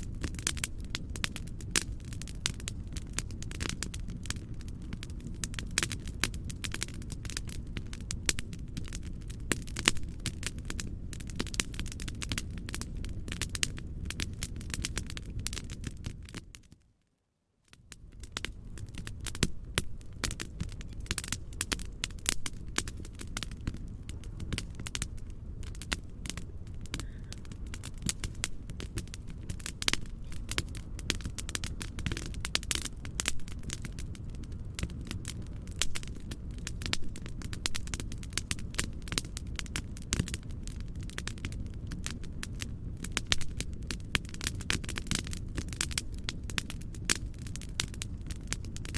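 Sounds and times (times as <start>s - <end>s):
fireplace crackling and popping: 0.0s - 48.9s
low rumbling noise: 18.0s - 39.5s.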